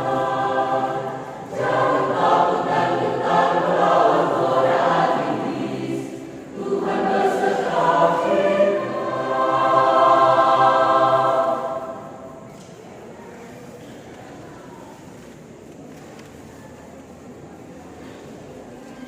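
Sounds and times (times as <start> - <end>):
choir singing: 0.0 - 12.6.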